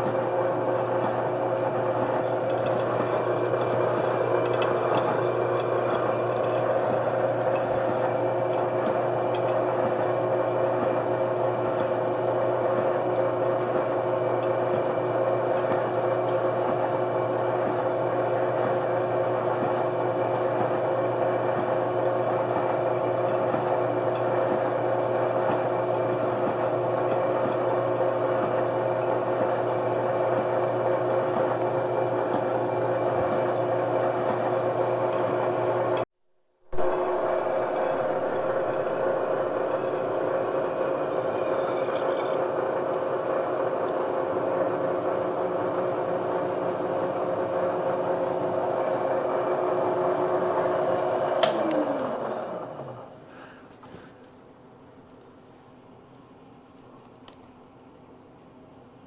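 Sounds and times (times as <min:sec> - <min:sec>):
shop machine motor humming: 0:00.0 - 0:13.2, 0:36.7 - 0:53.2.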